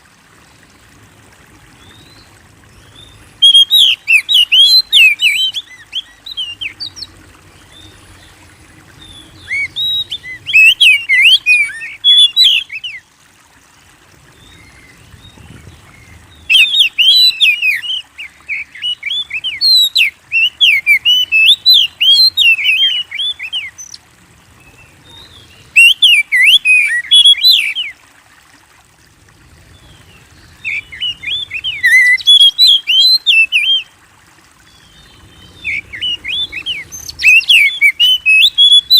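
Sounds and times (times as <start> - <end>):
bird singing whistled phrases: 3.4 - 7.1, 9.4 - 13.0, 16.4 - 24.0, 25.1 - 27.9, 30.6 - 33.9, 35.6 - 38.9.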